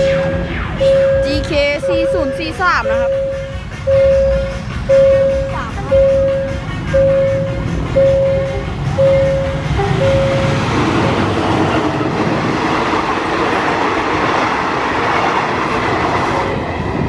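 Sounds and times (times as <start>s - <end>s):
level crossing warning beeps: 0.0s - 11.2s
train rumble: 0.0s - 17.0s.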